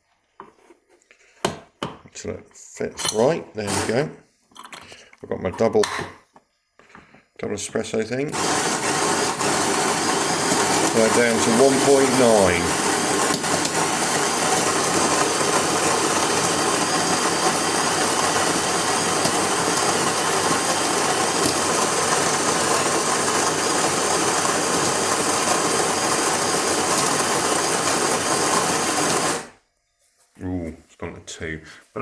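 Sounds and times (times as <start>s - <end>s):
coffee grinder grinding beans: 3.6s - 4.2s, 8.3s - 29.6s.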